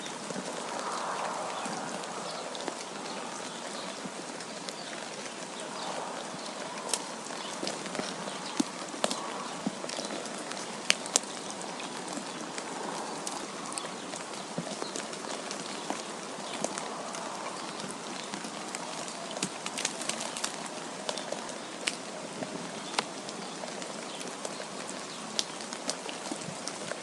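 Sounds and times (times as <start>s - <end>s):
wind blowing: 0.0s - 21.5s.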